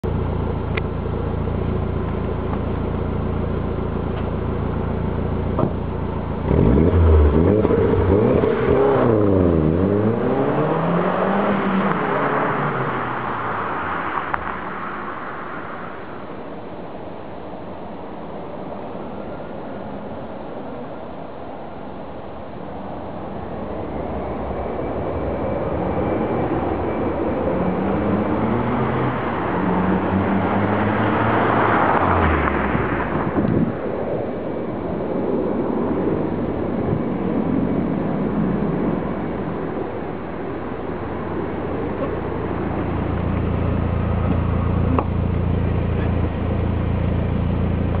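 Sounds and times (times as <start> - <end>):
car engine accelerating: 0.0 - 15.2, 25.2 - 33.9, 41.4 - 48.0.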